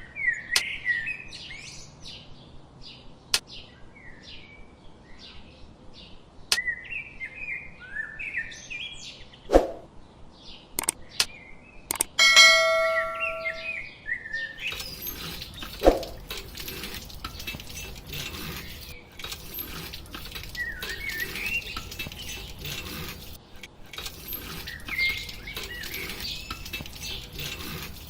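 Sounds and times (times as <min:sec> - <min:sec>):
small clicks and taps: 0:10.8 - 0:11.3, 0:11.9 - 0:12.2
bird-like chirps: 0:12.6 - 0:16.2.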